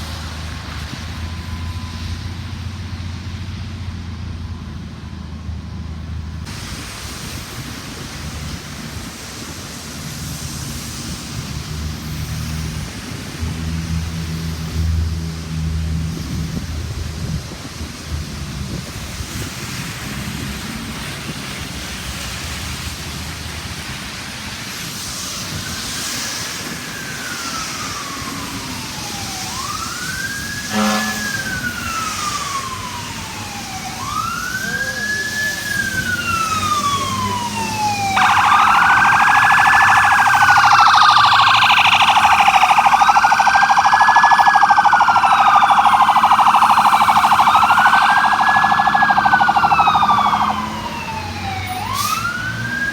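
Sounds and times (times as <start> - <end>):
wailing siren: 0.0 - 3.9, 9.3 - 22.6, 24.6 - 52.9
loud warbling siren: 25.5 - 52.9
vehicle horn blast: 30.7 - 31.6.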